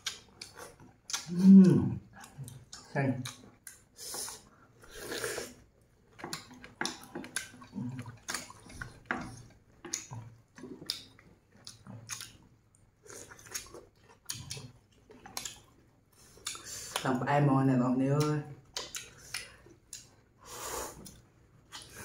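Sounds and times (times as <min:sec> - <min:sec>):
chewing and wet lip smacks: 0:00.0 - 0:17.1, 0:18.2 - 0:22.0.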